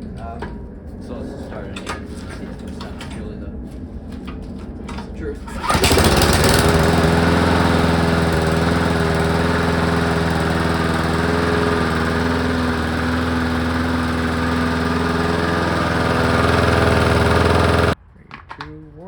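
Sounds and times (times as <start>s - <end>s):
lawn mower engine running: 5.5s - 18.0s.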